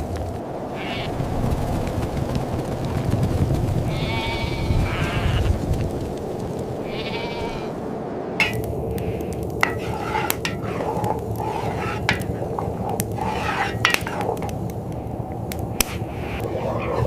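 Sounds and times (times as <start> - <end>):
blizzard wind: 0.0 - 17.0
goat bleating: 6.9 - 7.7.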